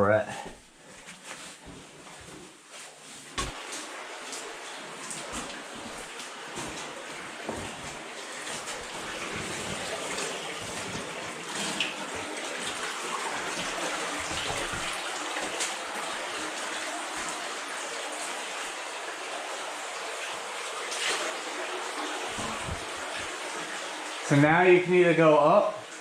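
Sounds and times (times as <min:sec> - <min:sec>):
faint knocks or splashes: 0:03.3 - 0:04.4, 0:05.1 - 0:15.8
stream water rushing: 0:03.4 - 0:24.4.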